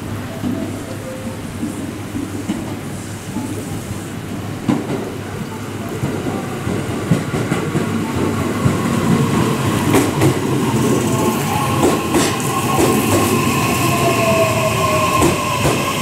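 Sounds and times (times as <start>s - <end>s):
electric train rumbling: 0.0s - 16.0s
train wheels clacking over rail joint: 7.0s - 16.0s.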